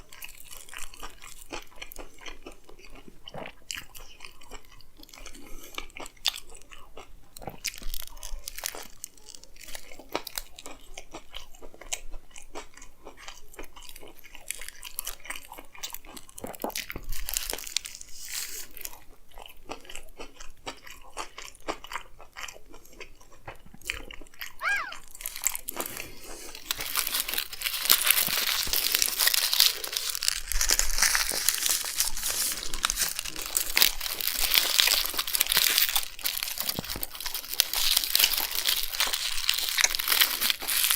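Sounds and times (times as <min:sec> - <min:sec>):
chewing and biting food: 0:00.0 - 0:40.9
wrapper crinkling: 0:17.1 - 0:18.8, 0:24.6 - 0:40.9.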